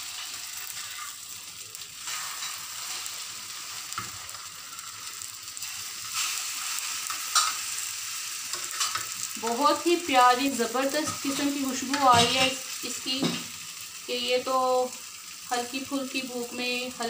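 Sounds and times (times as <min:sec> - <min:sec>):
bread sizzling in oil: 0:00.0 - 0:17.0
tongs clicking on pan: 0:07.1 - 0:07.6, 0:08.5 - 0:09.1, 0:10.8 - 0:13.2.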